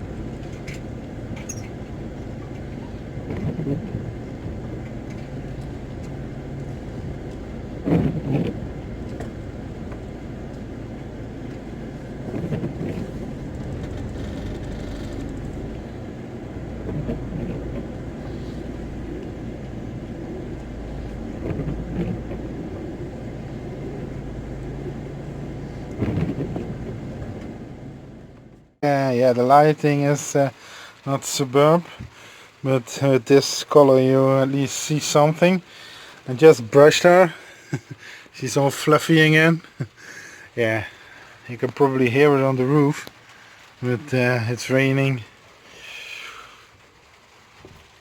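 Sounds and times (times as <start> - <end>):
engine and road rumble: 0.0 - 48.0.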